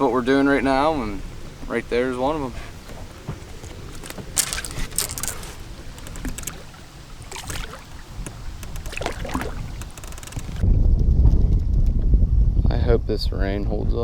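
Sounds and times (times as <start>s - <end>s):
wind rumbling on microphone: 0.0s - 14.0s
splashy clattering noises: 4.0s - 10.6s.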